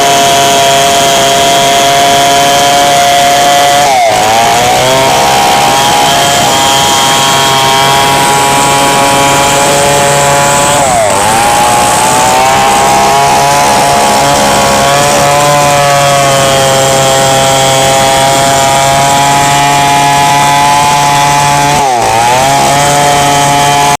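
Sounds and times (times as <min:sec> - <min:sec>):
chainsaw cutting wood: 0:00.0 - 0:24.0.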